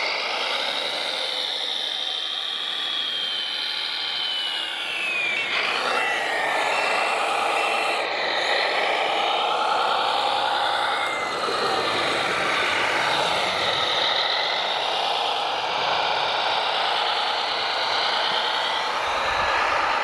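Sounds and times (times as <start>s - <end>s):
electric motors whining: 0.2s - 20.0s.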